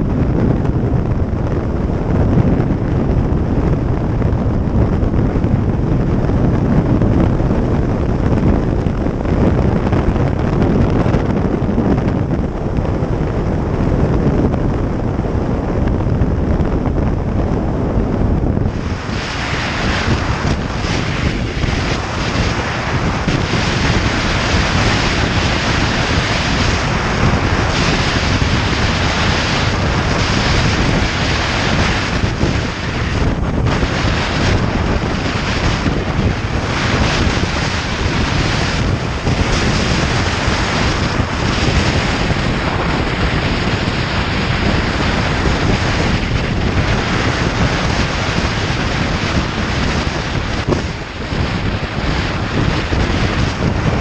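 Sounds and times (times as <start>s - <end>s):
road noise: 0.0s - 54.0s
wind rushing over microphone: 0.0s - 54.0s.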